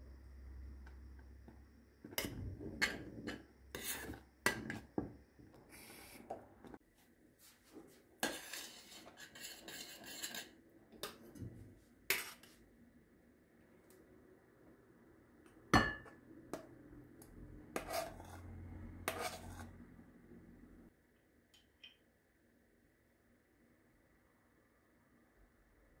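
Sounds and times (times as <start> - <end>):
dishes scraping: 2.1 - 5.0, 8.2 - 11.2, 17.8 - 18.5, 19.1 - 19.8.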